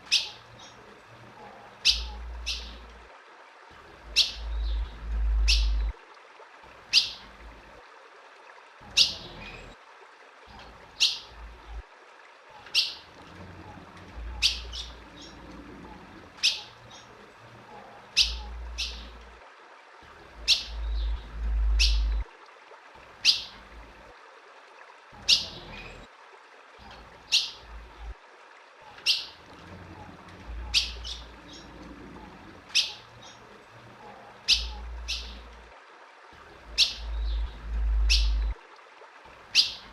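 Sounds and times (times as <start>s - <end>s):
bird chirping: 1.8s - 2.8s, 4.1s - 5.9s, 14.3s - 15.4s, 18.2s - 19.2s, 20.4s - 22.2s, 30.5s - 31.7s, 34.5s - 35.4s, 36.8s - 38.5s, 39.5s - 39.9s
low rumble: 20.7s - 22.2s.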